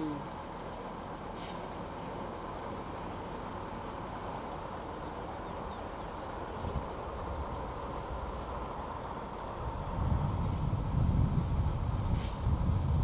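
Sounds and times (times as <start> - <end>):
low vehicle engine rumble: 0.0 - 13.0
short hiss: 1.4 - 1.7, 12.1 - 12.5.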